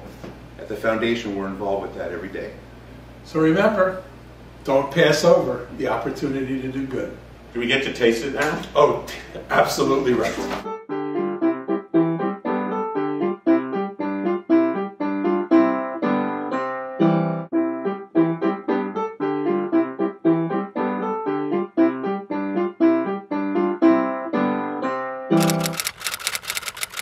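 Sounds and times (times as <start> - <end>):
piano playing steady notes: 10.4 - 25.4.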